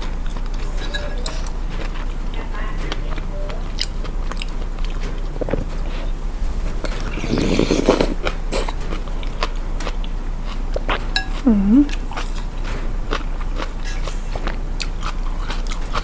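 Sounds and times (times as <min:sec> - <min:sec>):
chewing and slurping noodles: 0:00.0 - 0:16.0
low electrical hum: 0:00.0 - 0:16.0
person humming: 0:11.4 - 0:12.0.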